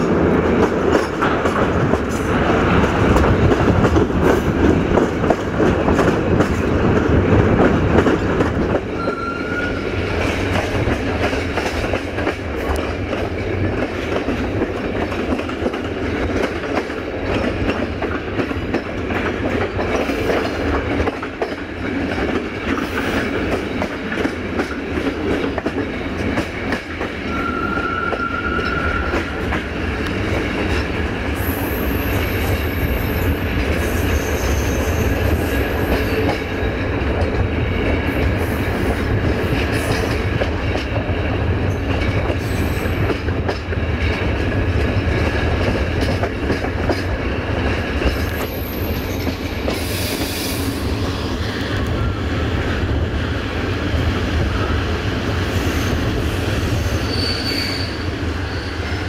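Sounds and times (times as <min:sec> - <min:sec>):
train wheels rumbling on track: 0:00.0 - 0:59.0
rail joint ticks: 0:00.4 - 0:09.2, 0:10.1 - 0:27.4, 0:35.4 - 0:50.4
thin wheel squeal: 0:57.0 - 0:58.8.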